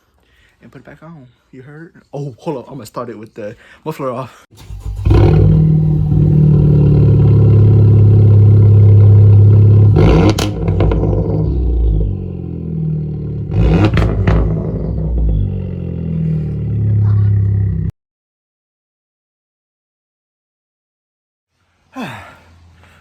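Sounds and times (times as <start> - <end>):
engine throttle blips: 4.6 - 17.9
loud car engine: 4.6 - 17.9.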